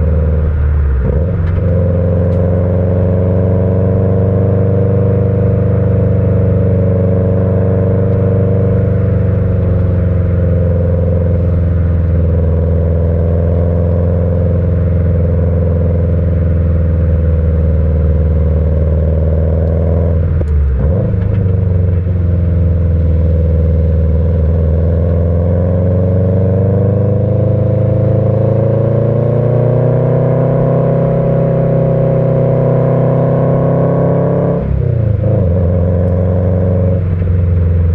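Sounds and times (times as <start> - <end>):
car engine rumbling while driving: 0.0 - 37.9.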